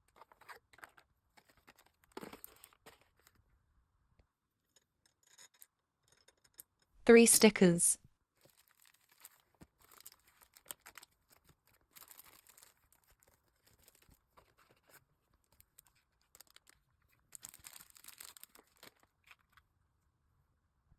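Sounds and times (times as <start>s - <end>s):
packaging rustling and crinkling: 0.0s - 3.4s, 8.4s - 19.6s.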